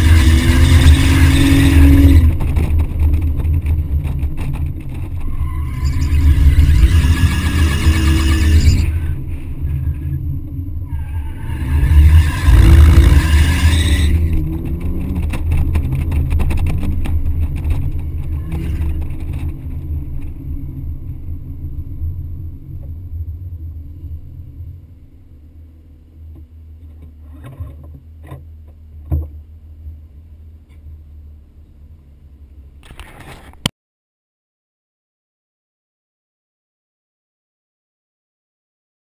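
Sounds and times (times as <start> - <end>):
wind noise: 0.0 - 25.0.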